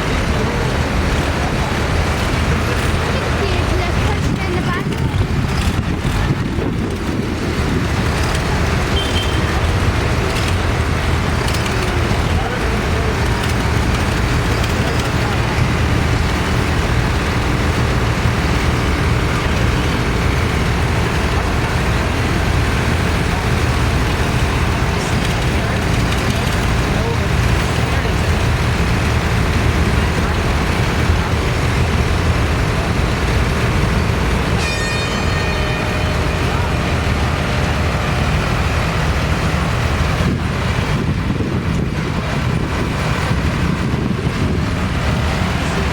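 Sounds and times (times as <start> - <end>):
tractor engines running: 0.0 - 45.9
horn sounding: 8.8 - 9.9, 34.3 - 38.3.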